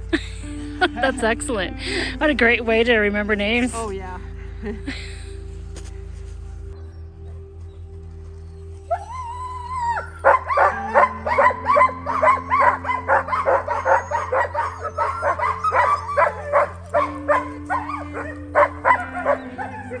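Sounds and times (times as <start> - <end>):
music with low chords: 0.0 - 20.0
dogs barking and yipping: 8.2 - 20.0
dog howling: 8.5 - 20.0.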